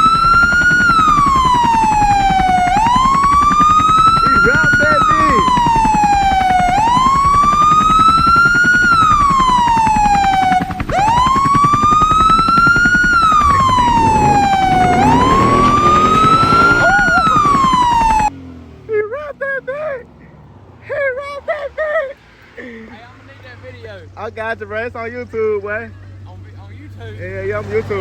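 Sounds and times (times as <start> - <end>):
siren wailing: 0.0 - 18.4
low rumble: 12.8 - 17.9.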